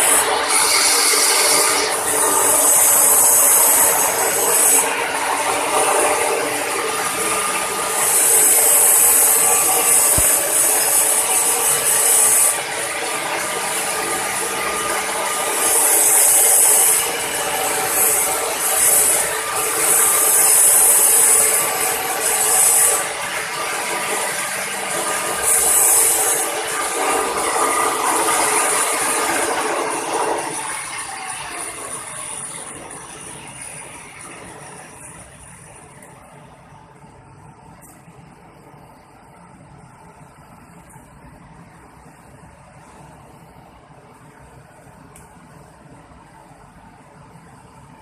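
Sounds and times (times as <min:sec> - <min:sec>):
welding arc hissing and buzzing: 0:00.0 - 0:36.0.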